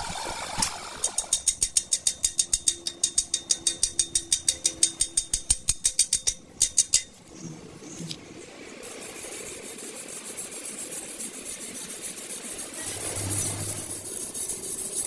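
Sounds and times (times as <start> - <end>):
rapid metallic tapping: 0.0 - 7.2.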